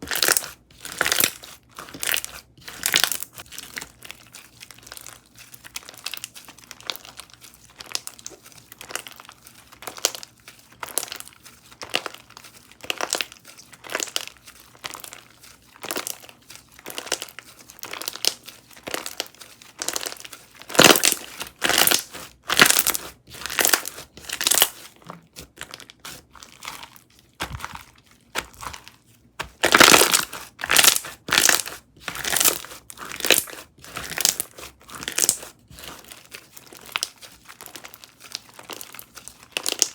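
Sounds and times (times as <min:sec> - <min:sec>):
slime squished by hand: 0:15.8 - 0:39.9.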